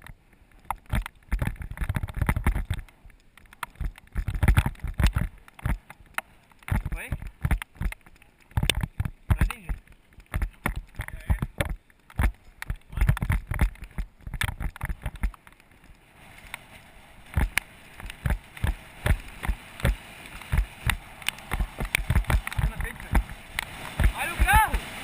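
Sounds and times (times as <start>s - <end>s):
bicycle knocking and rattling: 0.0s - 25.0s
steady hiss: 15.4s - 25.0s.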